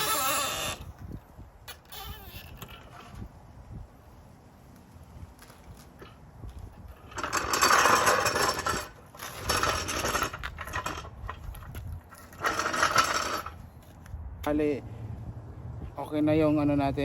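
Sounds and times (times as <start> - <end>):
lug nuts rattling and ratcheting: 6.0 - 13.9.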